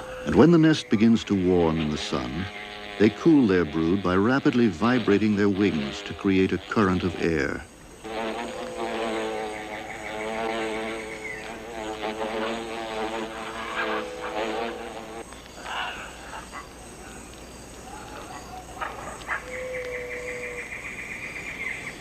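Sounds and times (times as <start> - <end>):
wasps buzzing: 0.2 - 19.9
short forest calls: 6.6 - 22.0
rapid high pulsed chirping: 7.0 - 19.3.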